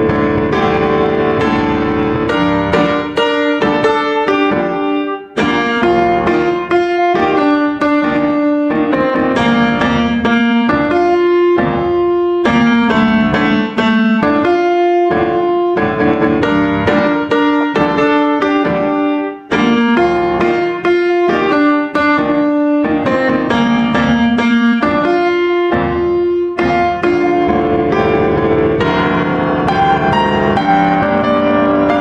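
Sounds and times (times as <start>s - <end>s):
slow piano music: 0.0s - 32.0s.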